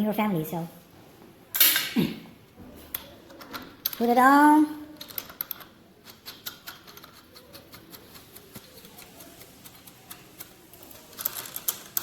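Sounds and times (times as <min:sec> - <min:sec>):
small metal parts and tools clicking: 0:02.9 - 0:04.2, 0:05.0 - 0:12.0.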